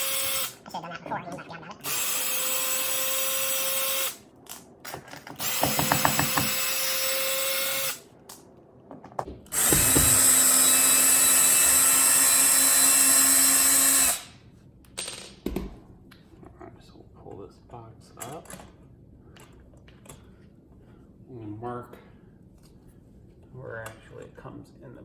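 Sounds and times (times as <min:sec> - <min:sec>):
cordless drill running: 0:00.0 - 0:00.6, 0:01.8 - 0:04.2, 0:05.4 - 0:08.0, 0:09.5 - 0:14.3.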